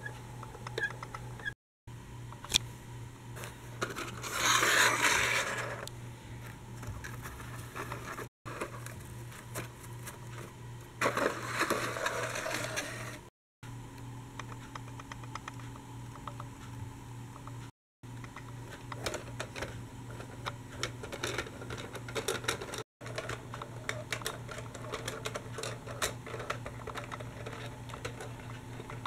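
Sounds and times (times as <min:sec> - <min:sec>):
steady low hum: 0:00.0 - 0:22.4
plastic toy clicks and scrapes: 0:03.8 - 0:05.9, 0:11.0 - 0:13.2, 0:18.8 - 0:29.0
toy scraping over hard surface: 0:03.8 - 0:05.9, 0:11.0 - 0:13.3.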